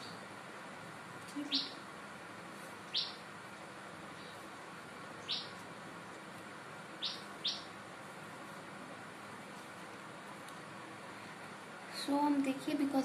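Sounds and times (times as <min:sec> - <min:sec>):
faint steady hiss: 0:00.0 - 0:13.0
bird chirping: 0:01.3 - 0:01.8, 0:02.8 - 0:03.2, 0:05.2 - 0:05.6, 0:07.0 - 0:07.7.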